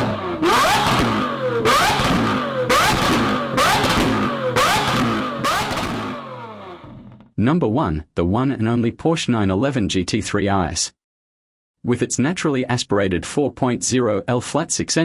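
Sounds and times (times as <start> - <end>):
car engine revving hard: 0.0 - 6.9.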